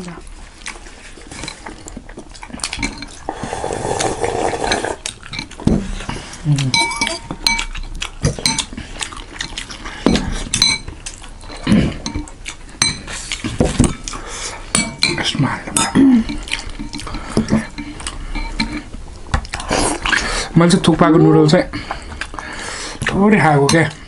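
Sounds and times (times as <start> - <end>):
wet slurping and chewing: 0.4 - 20.5
metal spoon clinking against bowl: 6.7 - 7.8, 10.1 - 10.9.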